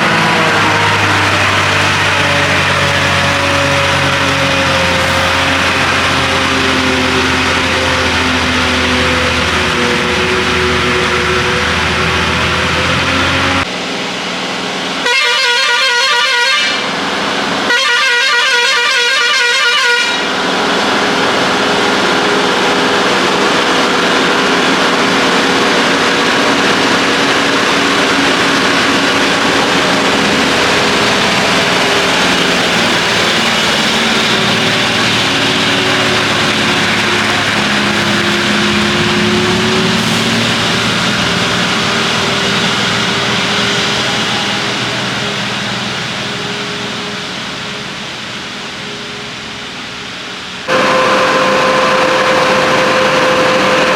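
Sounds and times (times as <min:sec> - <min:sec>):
diesel engine pulling uphill: 0:00.0 - 0:15.2, 0:16.6 - 0:17.8, 0:20.0 - 0:53.9
lorry horn warbling blasts: 0:15.0 - 0:17.0, 0:17.6 - 0:22.9, 0:50.7 - 0:53.9.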